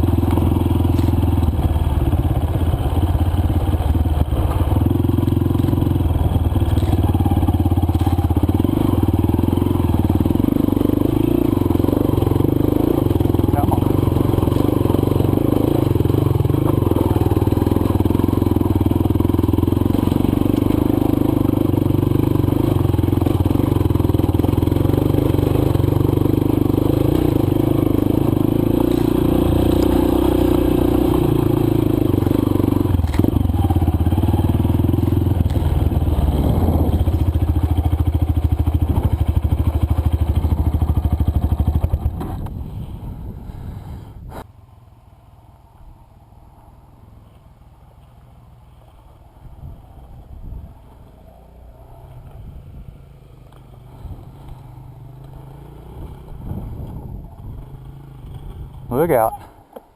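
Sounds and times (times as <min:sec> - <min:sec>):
dirt bike engine: 0:00.0 - 0:47.8, 0:48.7 - 0:59.9.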